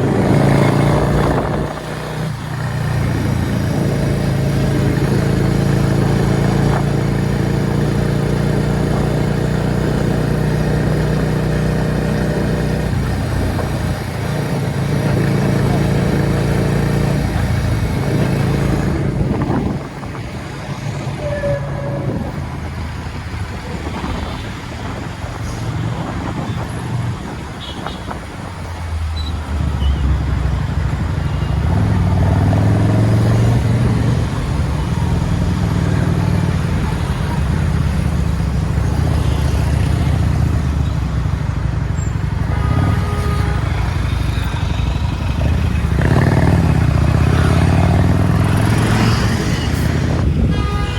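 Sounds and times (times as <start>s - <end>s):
motorcycle engine running: 30.6s - 50.9s.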